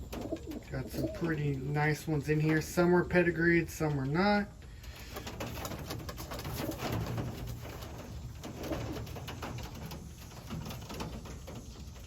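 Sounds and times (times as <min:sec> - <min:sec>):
pigeons cooing: 0:00.0 - 0:01.7.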